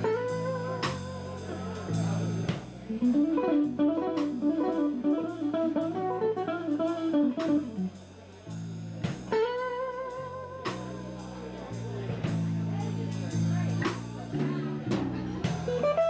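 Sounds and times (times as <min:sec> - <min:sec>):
electric guitar single notes: 0:00.0 - 0:07.9
bass and drums: 0:00.0 - 0:16.0.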